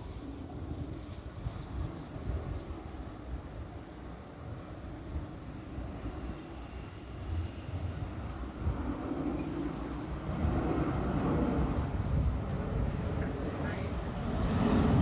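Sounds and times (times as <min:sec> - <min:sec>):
wind buffeting microphone: 0:00.0 - 0:15.0
jet engines rumbling: 0:05.5 - 0:15.0.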